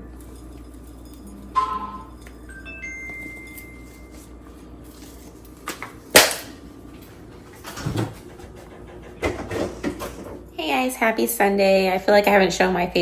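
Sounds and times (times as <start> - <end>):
household knocks and clunks: 7.6 - 10.4.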